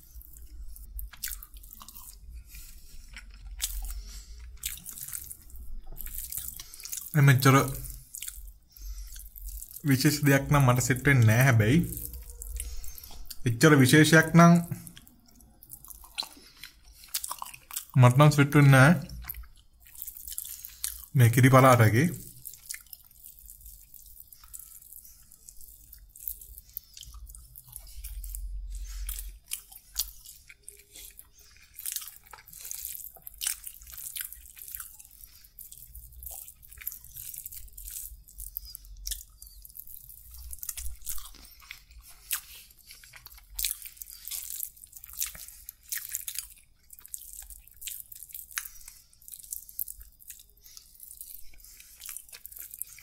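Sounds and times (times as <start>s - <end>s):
chewing and wet mouth sounds: 0.0s - 53.0s.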